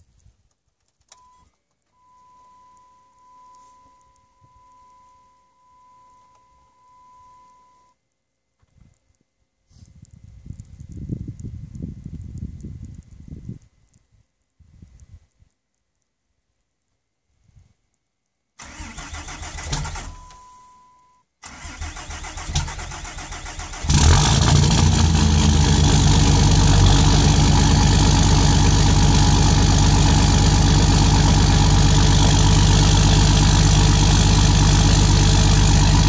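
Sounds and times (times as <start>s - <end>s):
diesel engine idling: 23.9s - 36.0s.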